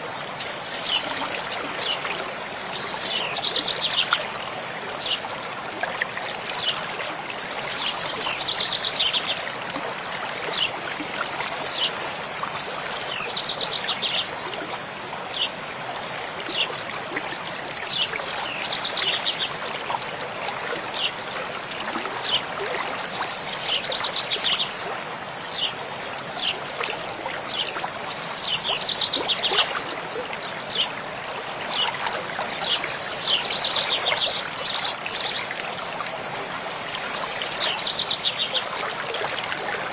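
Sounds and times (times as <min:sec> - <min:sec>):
stream running: 0:00.0 - 0:39.9
birds singing: 0:15.3 - 0:15.6, 0:17.7 - 0:19.6, 0:22.2 - 0:24.9, 0:25.5 - 0:26.6, 0:27.5 - 0:31.0, 0:32.5 - 0:35.6, 0:36.9 - 0:39.0.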